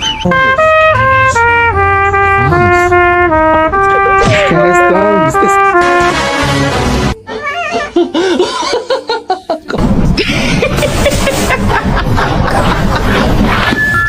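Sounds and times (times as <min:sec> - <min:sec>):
people laughing: 0:07.7 - 0:14.0.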